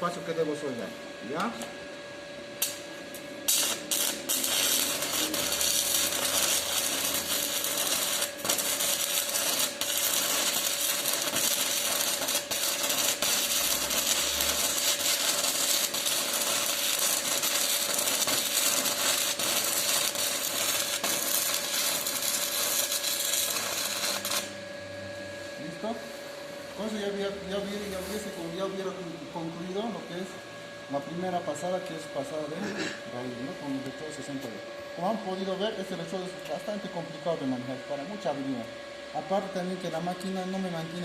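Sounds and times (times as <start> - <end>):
welding arc crackling: 2.6 - 24.5.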